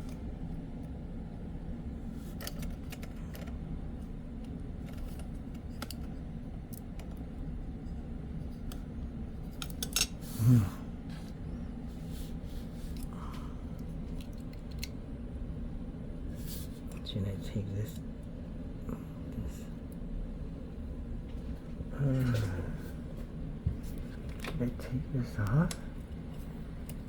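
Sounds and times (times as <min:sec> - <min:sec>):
small clicks and taps: 0:04.4 - 0:07.3.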